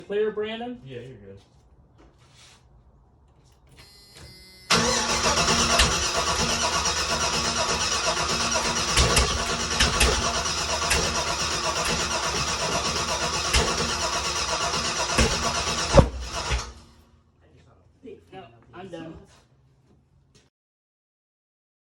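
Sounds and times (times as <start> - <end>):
engine running loud: 4.7 - 16.8
starter cranking: 4.7 - 16.8.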